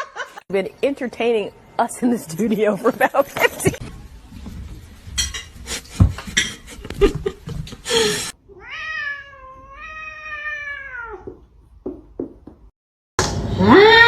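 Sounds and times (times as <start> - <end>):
cat meowing: 8.5 - 11.3.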